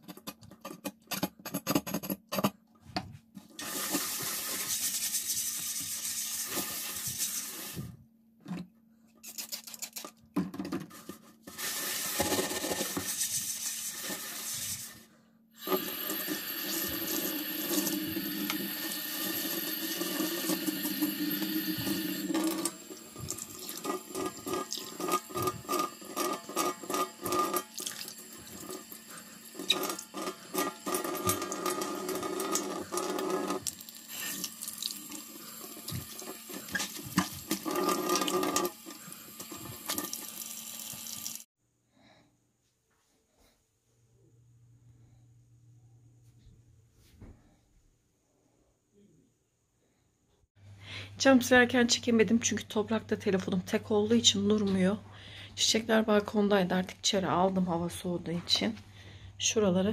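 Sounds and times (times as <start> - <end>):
water running from a tap: 3.6 - 7.8, 15.6 - 41.5
objects knocking and clattering: 10.0 - 11.2.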